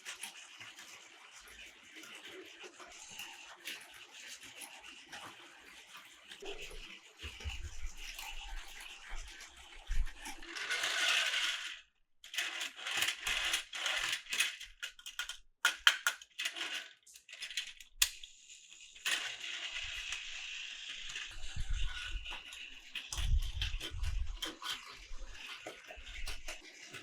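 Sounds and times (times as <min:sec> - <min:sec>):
plastic toy pieces clattering: 0:10.4 - 0:18.3, 0:19.0 - 0:27.0.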